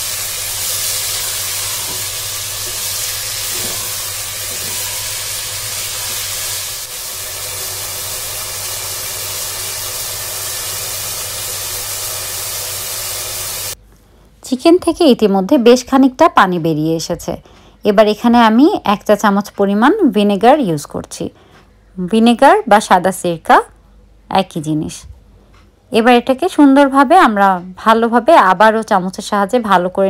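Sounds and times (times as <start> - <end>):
chicken sizzling in oil: 0.0 - 13.8.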